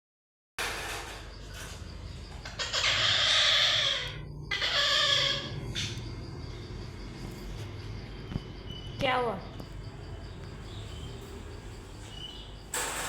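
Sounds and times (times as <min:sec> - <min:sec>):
parrot squawking: 0:02.5 - 0:05.6.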